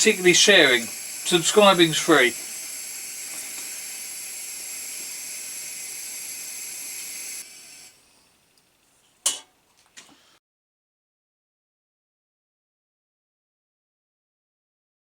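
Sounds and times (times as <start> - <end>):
pressure lamp hissing: 0.0 - 8.5.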